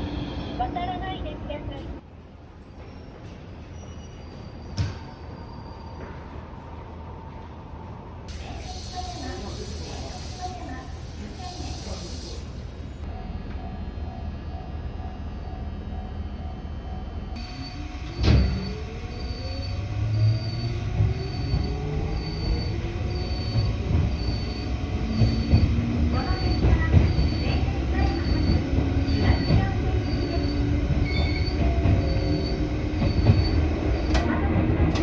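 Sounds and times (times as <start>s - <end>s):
wheels rumbling on rail: 0.0s - 35.0s
electric train motor whine: 17.2s - 34.2s.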